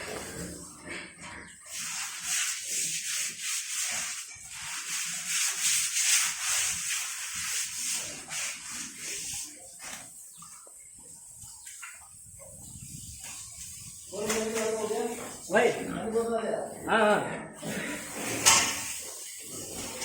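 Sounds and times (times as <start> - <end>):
pigs grunting: 0.0 - 1.9, 15.7 - 20.0.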